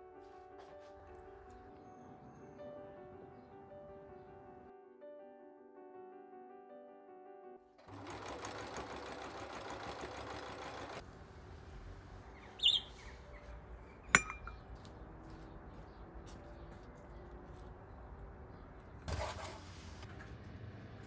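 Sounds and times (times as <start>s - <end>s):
piano music: 0.0s - 8.2s
small machine whirring: 7.9s - 11.0s
sharp metallic clink: 14.1s - 14.6s.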